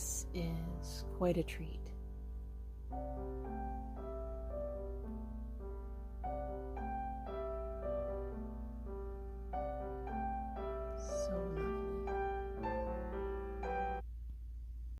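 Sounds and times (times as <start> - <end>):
gentle piano melody: 0.0 - 14.1
steady low hum: 0.0 - 14.9.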